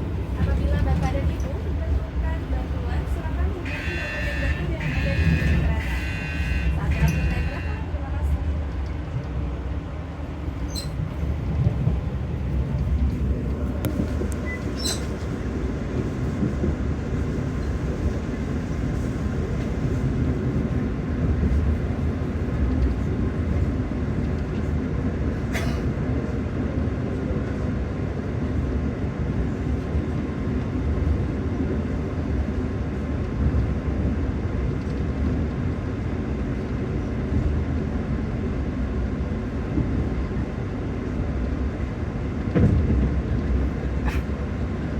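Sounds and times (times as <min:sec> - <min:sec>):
train rumbling on track: 0:00.0 - 0:44.9.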